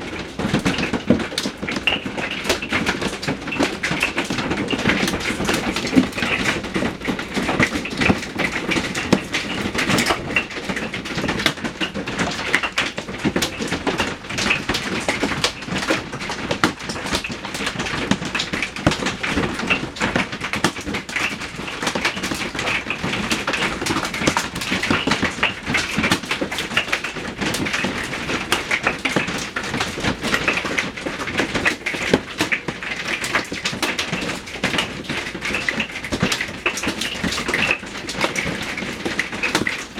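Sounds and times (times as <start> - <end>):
hail clattering on a roof: 0.0 - 39.9.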